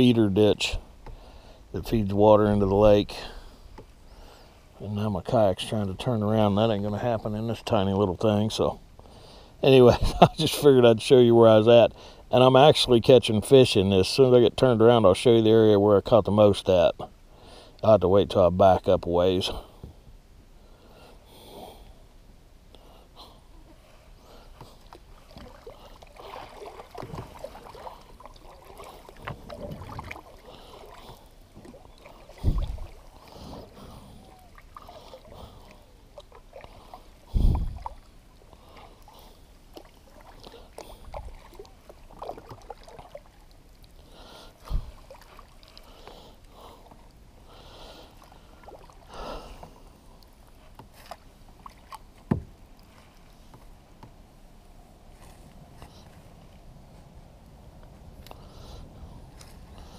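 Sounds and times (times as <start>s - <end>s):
paddle strokes splashing: 23.6s - 54.2s
paddle knocking on hull: 52.2s - 52.6s.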